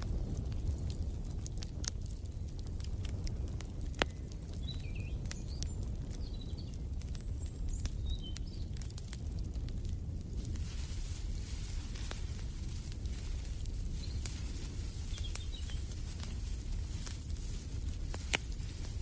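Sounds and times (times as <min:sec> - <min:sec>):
wood fire crackling: 0:00.0 - 0:19.0
small birds chirping: 0:03.3 - 0:09.9, 0:10.5 - 0:19.0.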